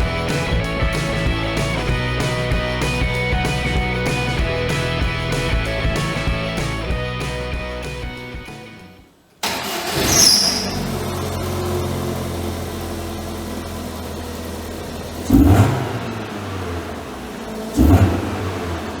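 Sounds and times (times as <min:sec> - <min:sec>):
car engine starting and idling: 0:00.0 - 0:08.5, 0:09.4 - 0:19.0
music: 0:00.0 - 0:09.1.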